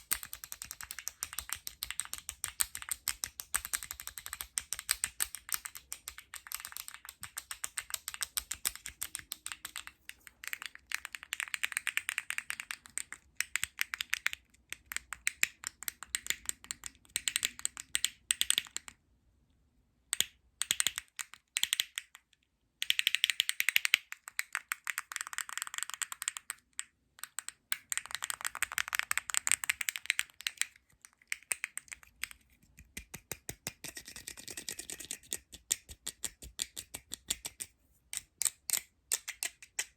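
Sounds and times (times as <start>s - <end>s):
tapping and scratching on plastic: 27.3s - 39.9s.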